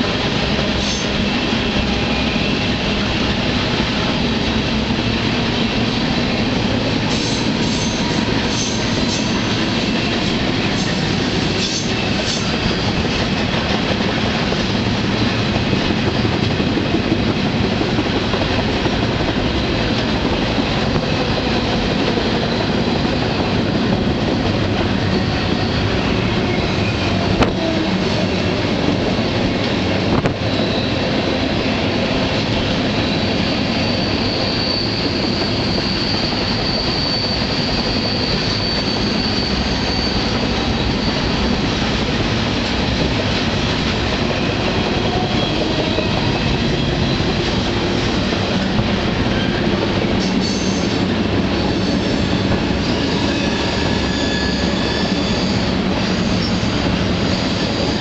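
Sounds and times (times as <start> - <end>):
train wheels rumbling on rails: 0.0 - 58.0
high wheel squeal: 7.1 - 13.1, 24.3 - 28.0, 30.4 - 31.4, 32.7 - 41.7, 49.2 - 58.0.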